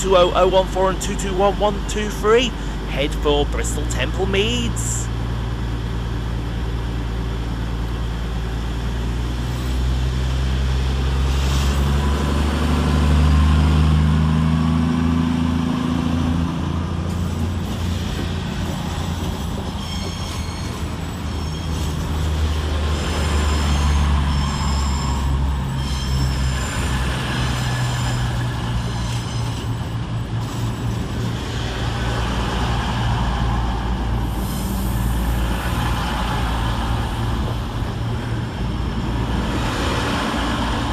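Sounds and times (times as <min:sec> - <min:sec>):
train diesel engines throttling up: 0:00.0 - 0:40.9
high wheel squeal: 0:17.1 - 0:37.0.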